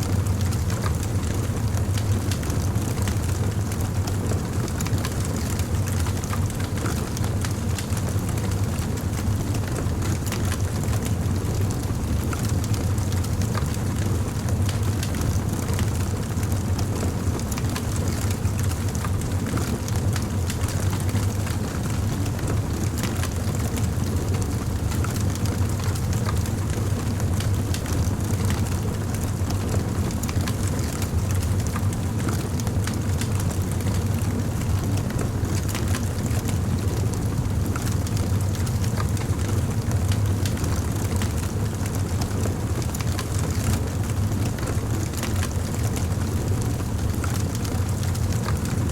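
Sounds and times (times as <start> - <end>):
fire crackling and popping: 12.4 - 48.7.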